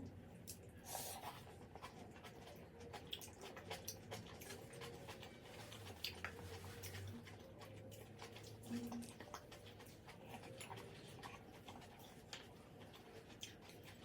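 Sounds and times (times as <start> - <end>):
soft chewing: 0.0 - 14.0.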